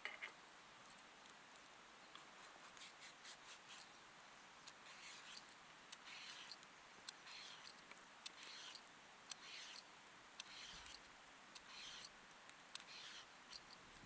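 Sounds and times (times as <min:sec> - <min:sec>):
rhythmic cutting scrapes and clicks: 0:04.6 - 0:14.0.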